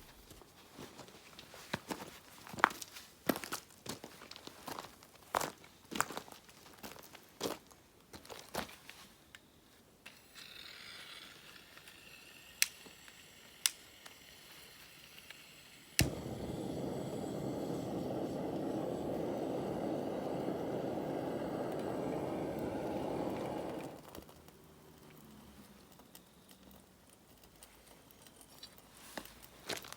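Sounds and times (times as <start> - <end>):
faint gas hiss: 14.3 - 24.3
burner flame rushing: 15.7 - 24.2
igniter clicks: 16.0 - 24.2.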